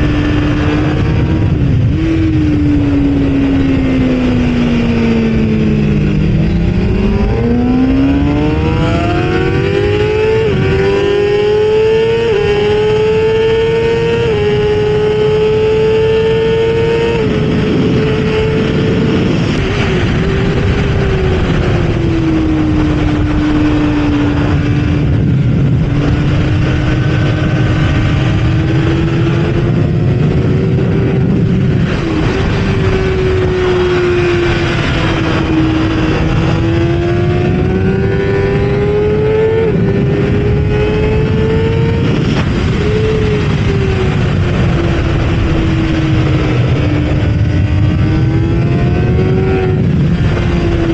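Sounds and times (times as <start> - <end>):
motorcycle engine racing: 0.0 - 50.9
rushing noise: 17.2 - 50.9.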